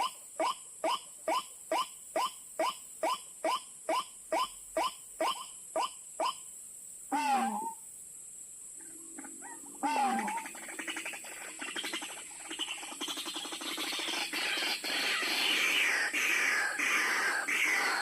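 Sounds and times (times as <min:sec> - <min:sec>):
waterhen calls: 0:07.1 - 0:07.8, 0:09.2 - 0:18.0
rapid bird chattering chorus: 0:09.2 - 0:18.0.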